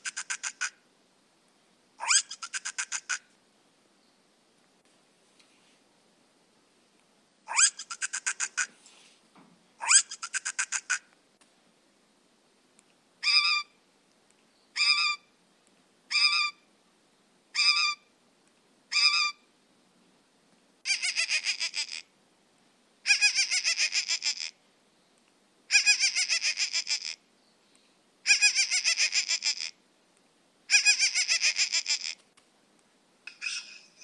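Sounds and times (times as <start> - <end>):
bird trilling: 13.2 - 13.7, 14.8 - 15.2, 16.1 - 16.6, 18.9 - 19.4.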